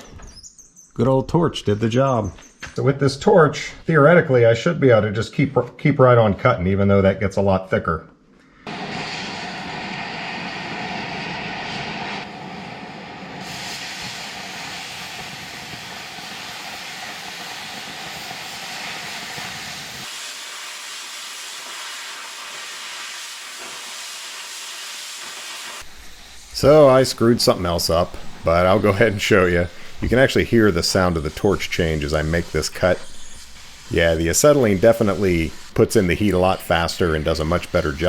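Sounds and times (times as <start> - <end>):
cutting torch hissing: 8.6 - 38.0.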